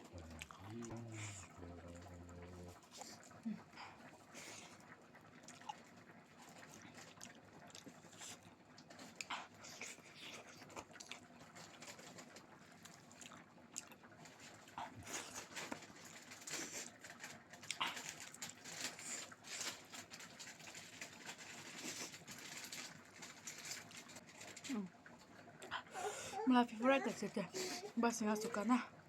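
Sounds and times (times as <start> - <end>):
person chewing food: 0.2 - 1.4, 5.4 - 5.8, 9.1 - 12.2, 12.8 - 24.6.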